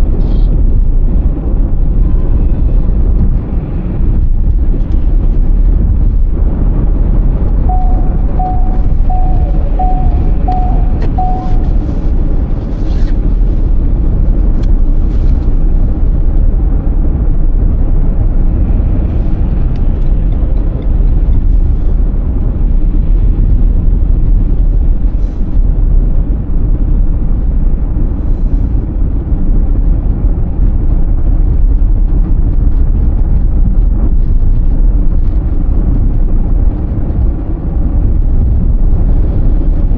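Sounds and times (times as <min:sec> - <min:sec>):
car road and engine rumble: 0:00.0 - 0:39.9
short beeps: 0:07.6 - 0:12.0.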